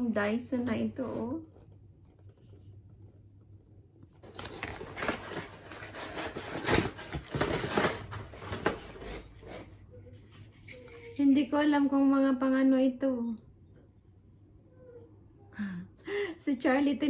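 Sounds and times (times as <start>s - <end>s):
packaging rustling: 4.2s - 9.7s.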